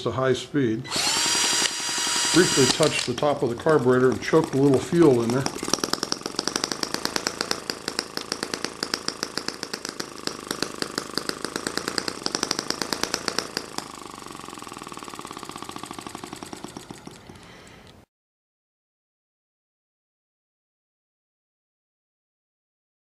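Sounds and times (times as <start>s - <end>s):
model engine exhaust pops: 1.5s - 17.6s.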